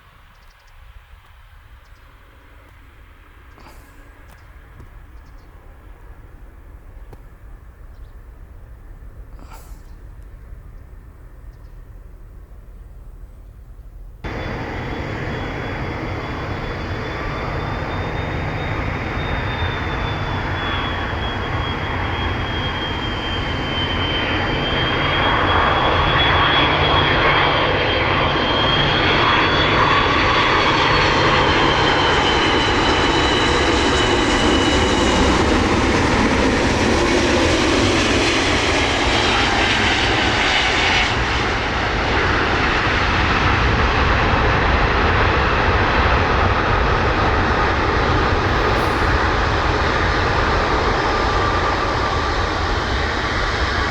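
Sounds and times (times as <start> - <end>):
jet engines whining and roaring: 0.7 - 53.9.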